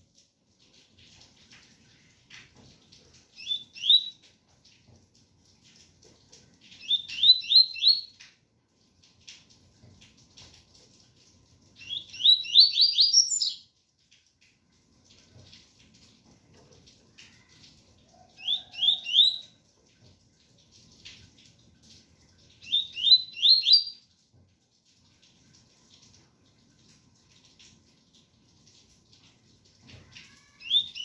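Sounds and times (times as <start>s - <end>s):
faint rain patter: 0.0s - 31.0s
bird singing whistled notes: 3.4s - 4.2s, 6.8s - 8.1s, 11.8s - 13.6s, 18.4s - 19.5s, 22.6s - 24.0s, 30.6s - 31.0s.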